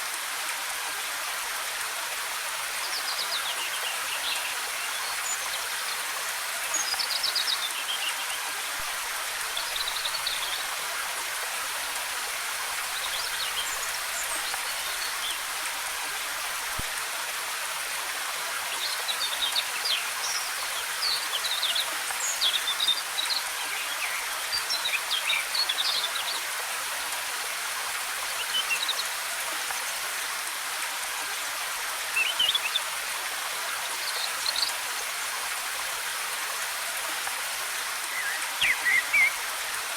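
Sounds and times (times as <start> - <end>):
waterfall rushing: 31.7 - 39.9
birds chirping: 38.1 - 39.4.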